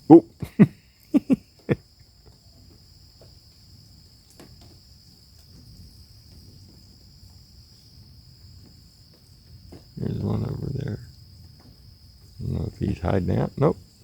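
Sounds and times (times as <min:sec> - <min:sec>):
insect chorus drone: 0:00.0 - 0:14.0
faint low rumble: 0:05.1 - 0:14.0.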